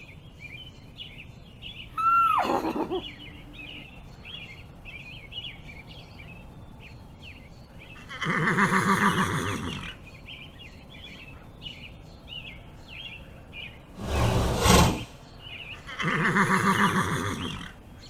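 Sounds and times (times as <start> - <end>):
birds chirping: 0.0 - 18.0
horse whinnying: 15.9 - 17.7.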